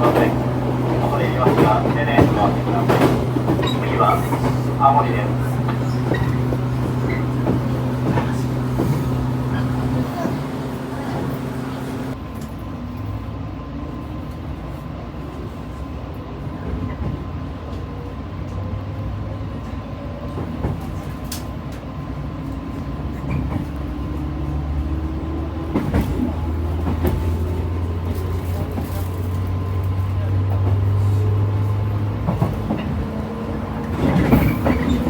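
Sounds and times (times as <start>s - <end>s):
train motor whine: 0.0s - 12.2s.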